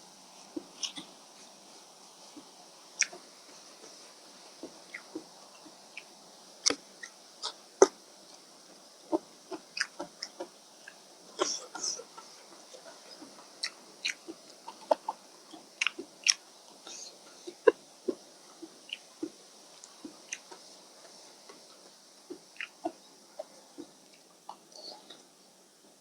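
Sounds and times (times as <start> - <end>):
chewing and mouth smacks: 3.0 - 3.2, 9.8 - 16.8, 17.4 - 20.6, 22.3 - 23.0.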